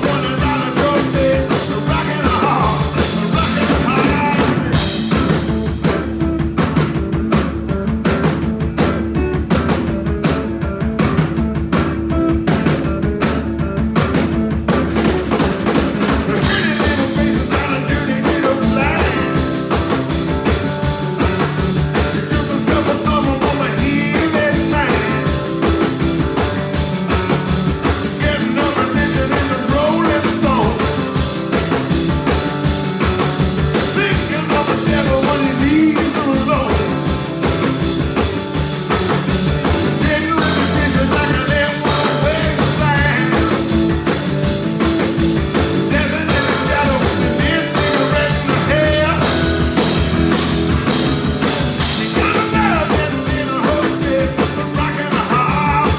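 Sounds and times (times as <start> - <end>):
person singing: 0.0 - 5.1, 16.0 - 20.2, 22.0 - 25.8, 27.8 - 31.3, 33.8 - 37.3, 39.6 - 44.0, 45.8 - 50.6, 51.7 - 55.9
guitar: 0.0 - 55.9
live blues band playing: 0.0 - 55.9.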